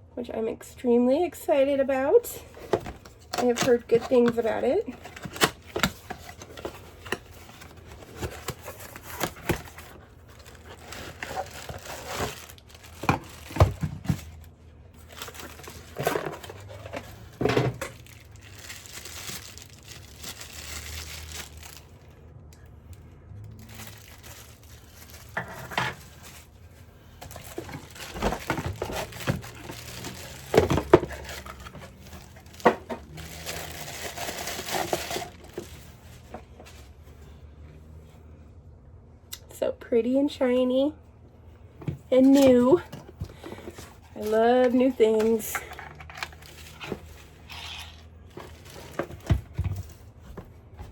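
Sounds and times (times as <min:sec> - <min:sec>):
packaging crinkling and tearing: 0:02.5 - 0:22.2, 0:23.5 - 0:36.6, 0:43.4 - 0:50.1.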